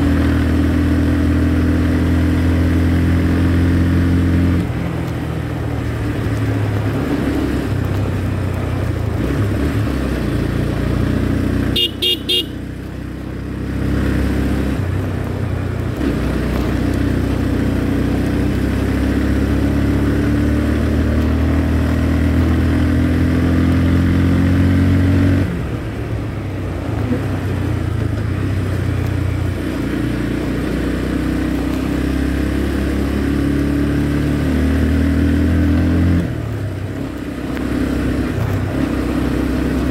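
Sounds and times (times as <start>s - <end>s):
motorcycle engine running: 0.0s - 39.9s
horn beeps: 11.7s - 12.6s.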